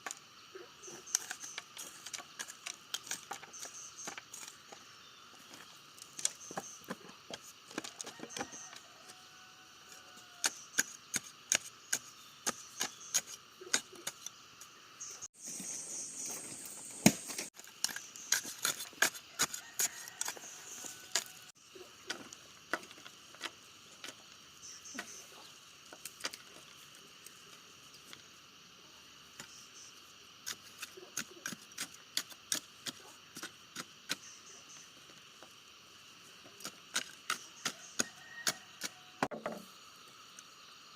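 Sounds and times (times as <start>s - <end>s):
bamboo clicking and knocking: 1.1s - 4.8s.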